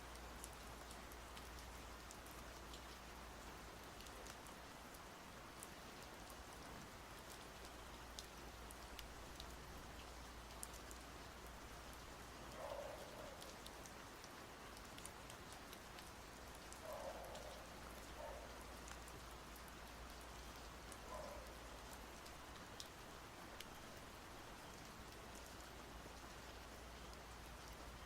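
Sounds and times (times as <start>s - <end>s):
soft rain: 0.0s - 28.0s
drip ticks: 7.3s - 11.0s, 14.7s - 23.0s.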